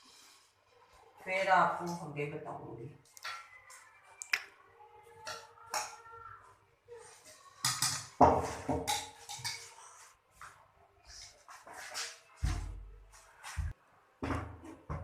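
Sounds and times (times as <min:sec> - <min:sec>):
metal utensils and dishes clinking: 0:07.2 - 0:10.2.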